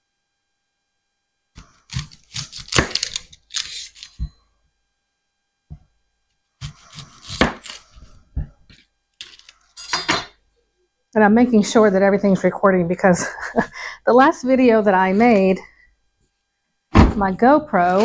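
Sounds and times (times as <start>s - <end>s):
onion skin crackling and tearing: 1.6s - 4.2s, 6.6s - 8.1s.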